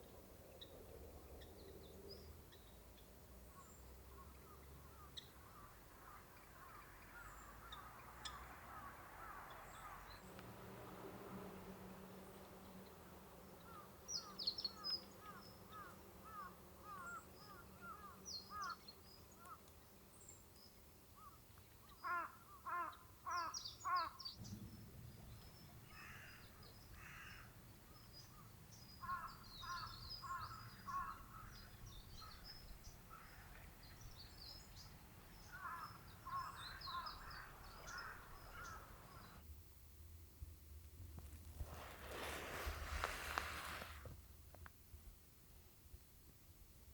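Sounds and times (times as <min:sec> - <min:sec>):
crows cawing: 0:04.8 - 0:08.0, 0:08.7 - 0:10.0, 0:15.2 - 0:18.8, 0:22.0 - 0:24.2, 0:25.9 - 0:27.6, 0:29.0 - 0:31.6, 0:33.1 - 0:33.5, 0:35.5 - 0:39.4
small birds chirping: 0:11.3 - 0:39.4.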